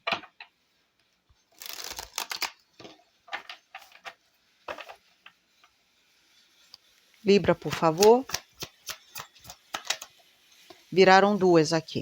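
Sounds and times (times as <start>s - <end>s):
cards being shuffled: 1.6s - 2.6s, 7.5s - 9.8s.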